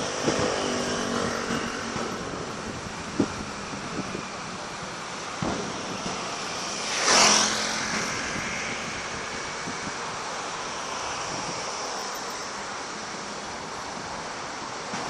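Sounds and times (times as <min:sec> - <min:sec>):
open-air background noise: 0:00.0 - 0:15.0
firework thud: 0:05.4 - 0:06.4.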